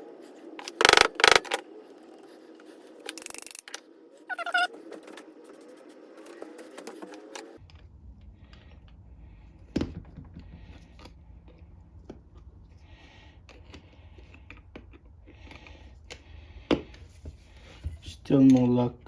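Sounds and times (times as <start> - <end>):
hand tool clicking and scraping: 0.6 - 1.6, 3.1 - 3.8
low hum: 7.5 - 18.1.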